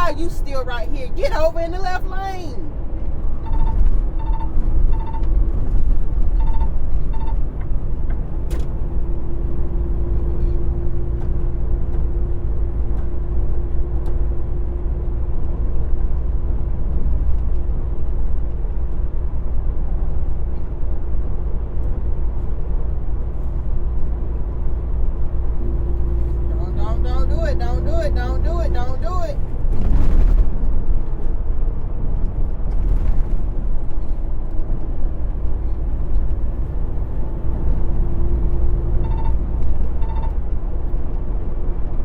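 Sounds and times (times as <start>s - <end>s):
truck engine and road rumble: 0.0s - 42.0s
short electronic beeps: 3.4s - 5.3s, 6.3s - 7.4s, 38.9s - 40.4s.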